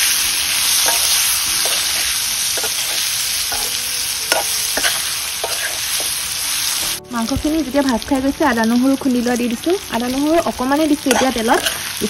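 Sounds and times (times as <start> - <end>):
food sizzling in hot oil: 0.0 - 12.0
spatula scraping and knocking pan: 0.6 - 6.3, 11.1 - 12.0.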